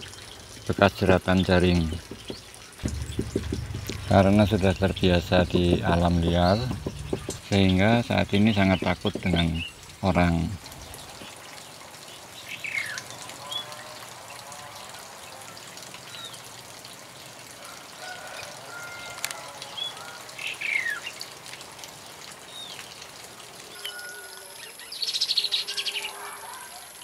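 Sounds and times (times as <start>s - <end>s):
birds chirping downward: 1.2s - 11.3s.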